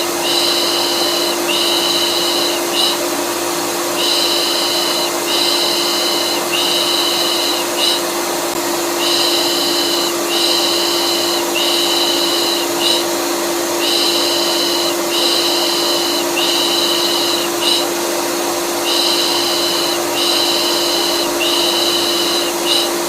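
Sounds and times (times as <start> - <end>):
vacuum cleaner running: 0.0 - 23.0
rhythmic shushing voice: 4.0 - 8.0.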